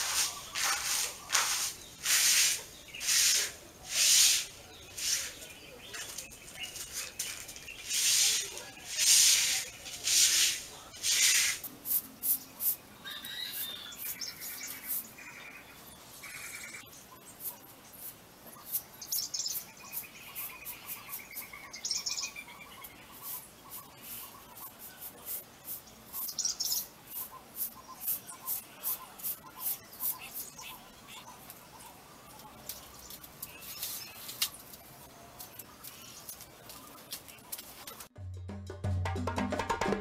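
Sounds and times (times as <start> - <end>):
hand broom sweeping floor: 0.0 - 12.8, 23.2 - 26.4
birds chirping: 0.0 - 38.1.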